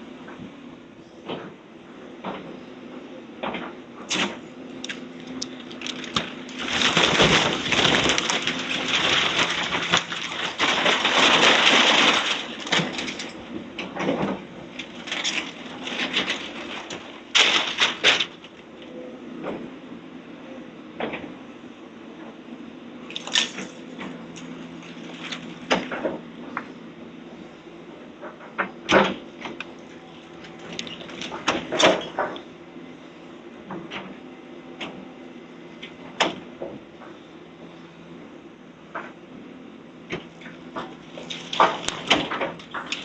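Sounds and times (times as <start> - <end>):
machine engine hum: 0.0 - 43.0
sharp cracks: 4.1 - 13.3, 14.8 - 18.6
demolition debris crunching: 4.1 - 19.0, 23.0 - 26.7, 28.3 - 32.5, 40.2 - 43.0.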